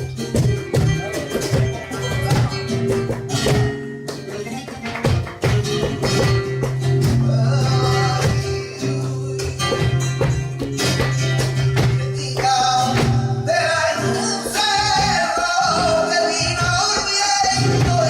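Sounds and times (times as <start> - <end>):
flamenco guitar: 0.0 - 18.0
person singing: 7.0 - 10.5.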